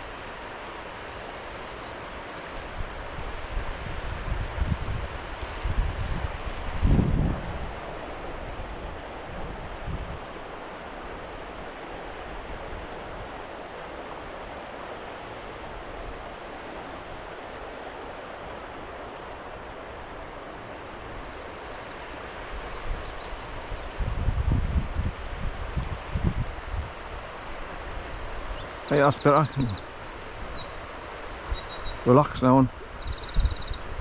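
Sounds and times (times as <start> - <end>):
running water rushing: 0.0 - 34.0
faint bird chirps: 20.7 - 24.1, 27.6 - 34.0.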